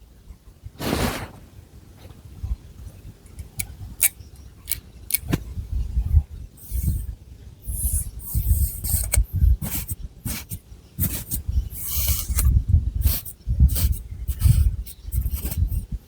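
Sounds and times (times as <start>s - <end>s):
fingernails scratching hair: 7.7s - 15.9s.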